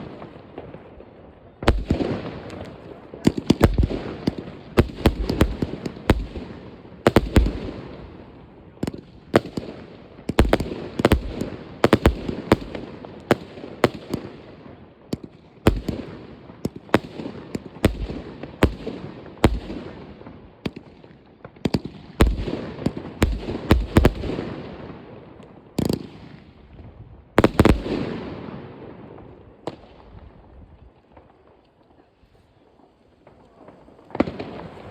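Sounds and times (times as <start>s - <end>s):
fireworks bangs: 0.0s - 32.1s, 32.8s - 34.9s.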